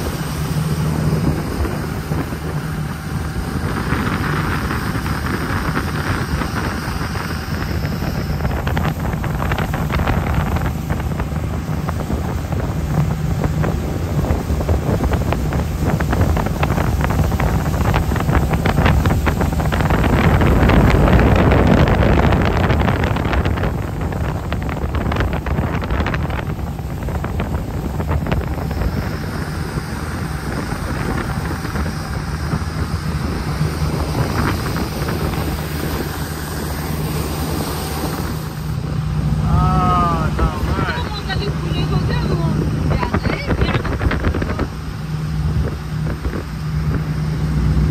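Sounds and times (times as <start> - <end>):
boat engine running: 0.0 - 47.9
wind buffeting microphone: 0.0 - 47.9.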